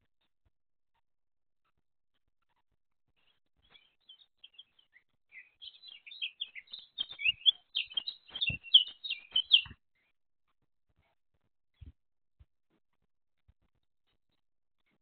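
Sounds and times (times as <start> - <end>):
small bird chirping: 3.2 - 9.8.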